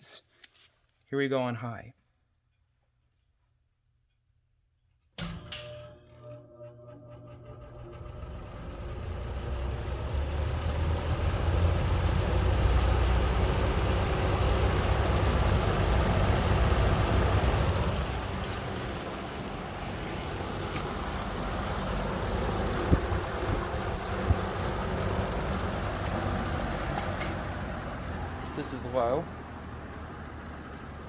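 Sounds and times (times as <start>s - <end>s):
box fan running: 5.2s - 31.0s.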